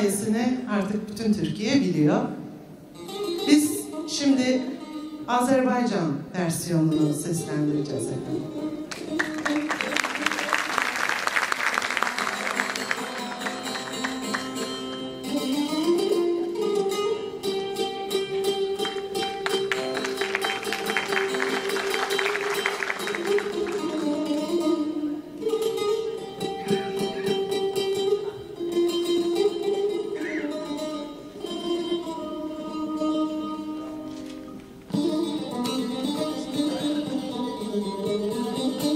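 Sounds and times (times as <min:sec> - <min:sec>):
strummed lute strings: 0:02.4 - 0:10.9, 0:11.5 - 0:38.9
held melody line: 0:08.2 - 0:34.0.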